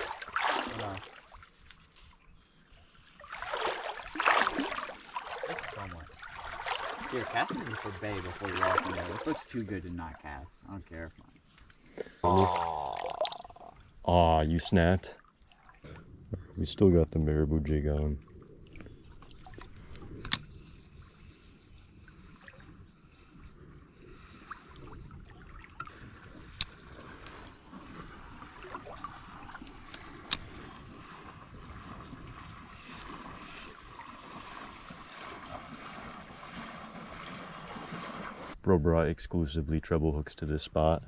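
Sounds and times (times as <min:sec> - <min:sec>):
crickets chirring: 0:00.0 - 0:41.0
running creek: 0:00.0 - 0:41.0
sharp clicks: 0:20.2 - 0:20.5.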